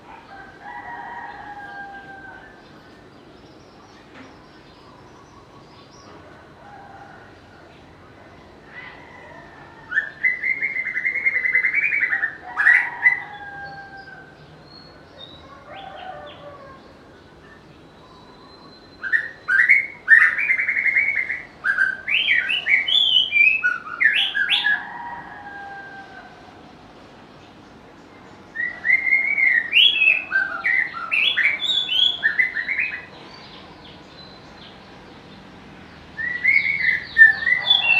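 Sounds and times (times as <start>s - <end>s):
songbird whistling phrases: 18.0s - 24.8s, 28.5s - 33.1s, 36.2s - 37.9s.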